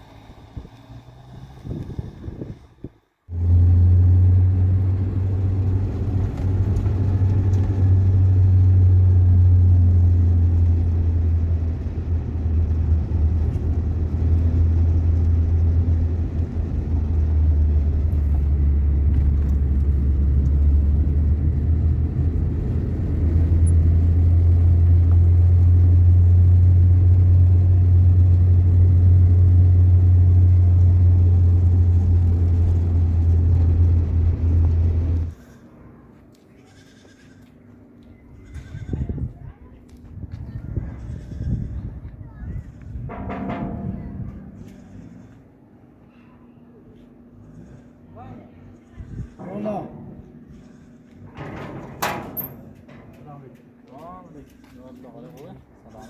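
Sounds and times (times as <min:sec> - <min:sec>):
vehicle rumble: 0:00.0 - 0:56.0.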